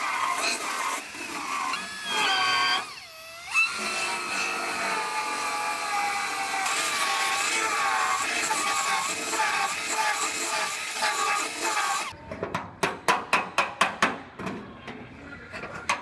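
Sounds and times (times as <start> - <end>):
grinder whining on sheet metal: 0.0 - 12.1.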